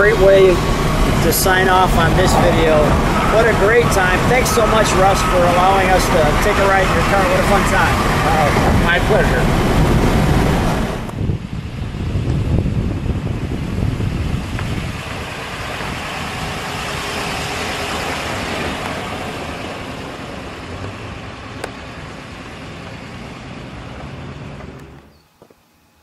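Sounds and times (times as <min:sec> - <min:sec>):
car driving by: 0:00.0 - 0:12.2.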